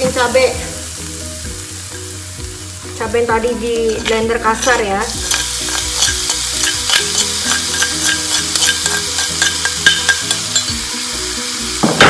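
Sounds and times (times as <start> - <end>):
shallots sizzling in hot oil: 0.0 - 12.0
spatula scraping stone mortar: 3.9 - 10.1.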